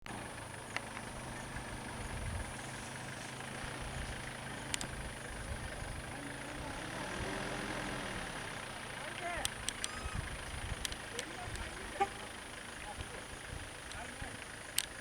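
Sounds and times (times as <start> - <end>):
vehicle engine idling: 0.0 - 15.0
sharp clicks: 0.6 - 1.2, 4.6 - 5.1, 9.1 - 11.7, 13.8 - 15.0.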